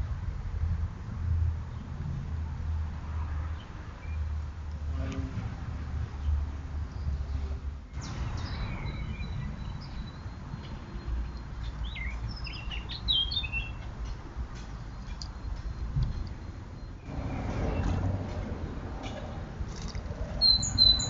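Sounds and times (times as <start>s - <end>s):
songbirds singing and chirping: 6.2s - 18.4s, 20.2s - 21.0s.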